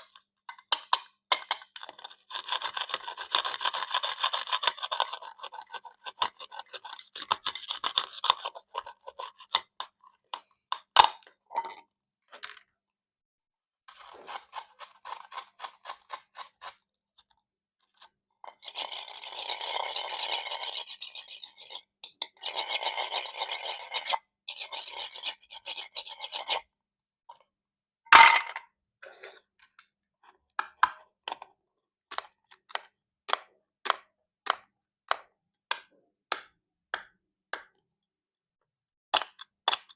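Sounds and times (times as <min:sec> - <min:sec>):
knife sawing through plastic: 0:02.0 - 0:09.5, 0:13.9 - 0:16.8.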